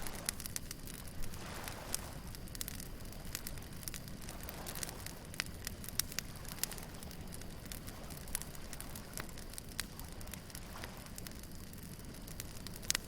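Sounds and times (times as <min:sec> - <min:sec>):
bonfire crackling and popping: 0:00.0 - 0:13.0
low rumble of surf: 0:00.0 - 0:13.0.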